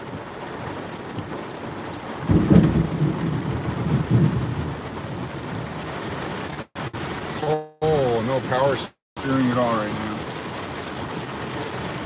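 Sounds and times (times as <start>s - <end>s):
thunder rumbling: 0.0s - 8.6s
heavy rain: 0.0s - 12.0s.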